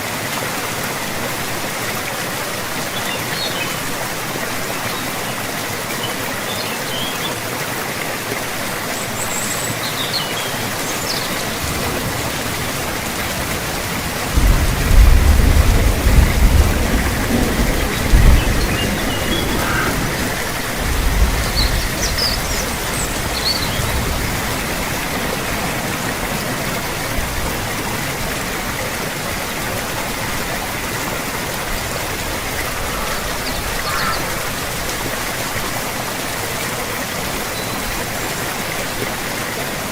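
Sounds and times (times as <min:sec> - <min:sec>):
steady rain falling: 0:00.0 - 0:39.9
thunder rumbling: 0:11.4 - 0:28.0.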